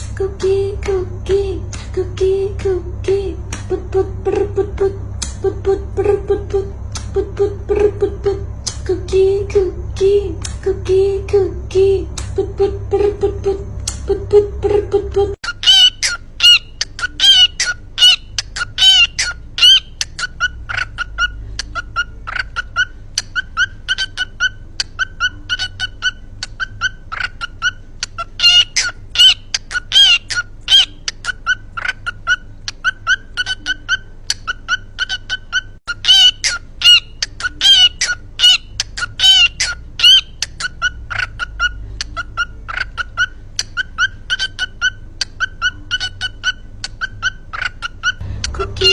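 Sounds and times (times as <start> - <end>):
cockatiel chirping and warbling: 15.4 - 48.9.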